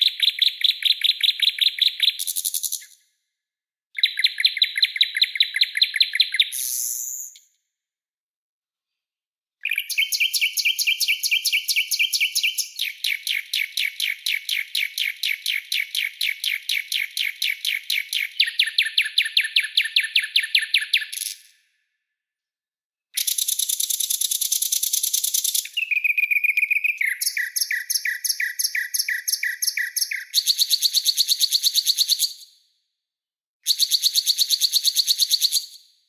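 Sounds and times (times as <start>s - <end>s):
songbird trilling: 25.6s - 30.7s.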